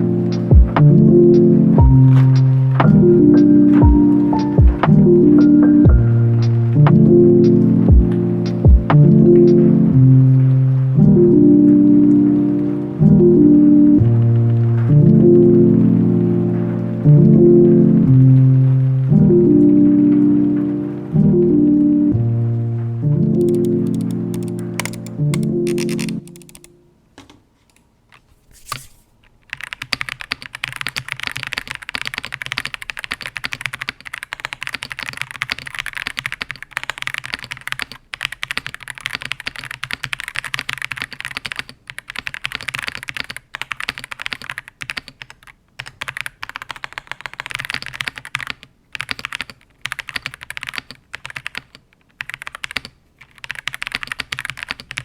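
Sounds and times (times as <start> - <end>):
mechanical keyboard typing: 23.4 - 26.8, 28.6 - 55.0.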